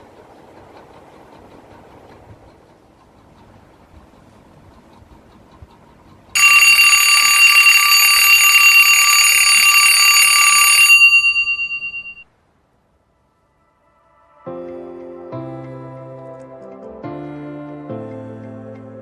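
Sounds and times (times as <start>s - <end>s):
loud bell-like ringing: 6.4s - 12.2s.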